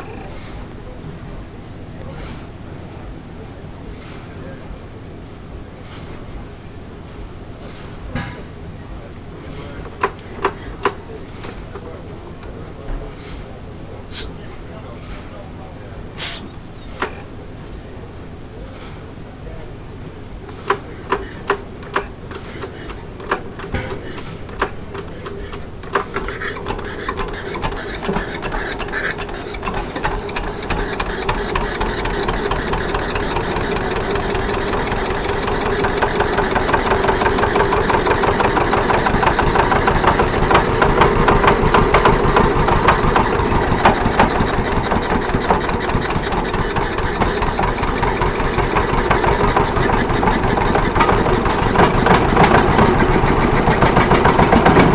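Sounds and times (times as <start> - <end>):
marine engine starting and running: 20.2 - 54.9.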